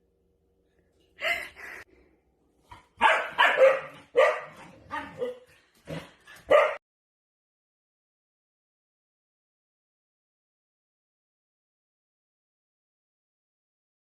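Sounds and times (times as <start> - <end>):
dog barking: 2.7 - 6.8.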